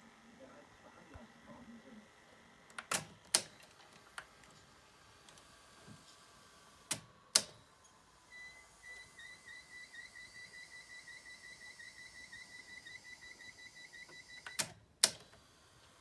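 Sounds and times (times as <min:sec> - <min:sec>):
video recorder mechanism clicks: 0:02.7 - 0:04.5, 0:06.9 - 0:07.6.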